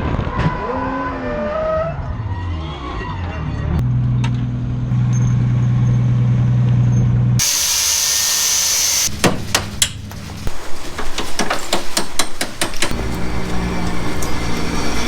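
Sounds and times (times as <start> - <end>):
loud air hiss: 7.4 - 9.5
car engine running: 12.7 - 15.0.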